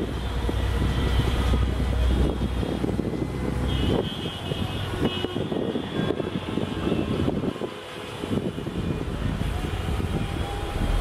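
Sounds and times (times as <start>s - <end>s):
train engine drone: 0.0s - 3.6s, 7.6s - 11.0s.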